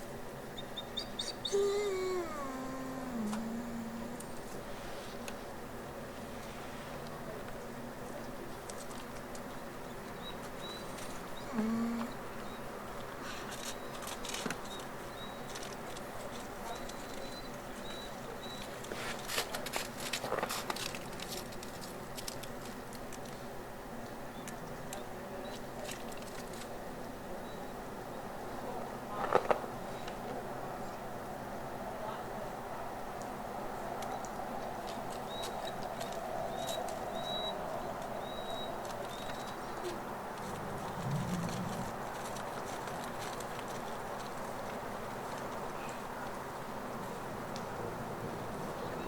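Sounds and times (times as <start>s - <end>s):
faint high chirps: 0.6s - 4.5s.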